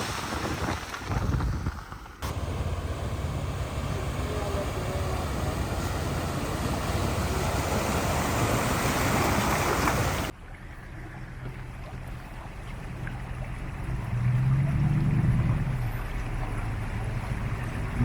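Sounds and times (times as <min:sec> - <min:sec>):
wind on microphone: 0:00.0 - 0:01.8
vehicle engine running: 0:02.0 - 0:10.3.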